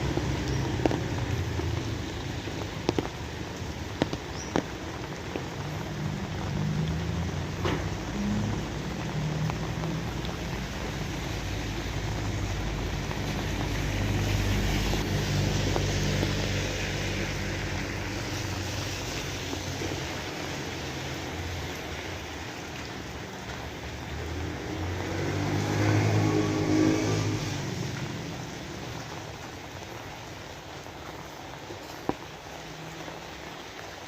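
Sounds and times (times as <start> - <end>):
steady rain hiss: 0.0 - 34.0.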